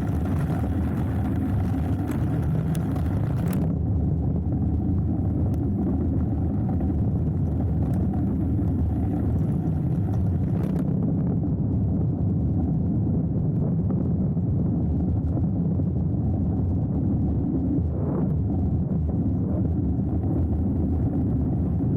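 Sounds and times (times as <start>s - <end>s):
rumble of bike tyres on dirt: 0.0s - 11.1s.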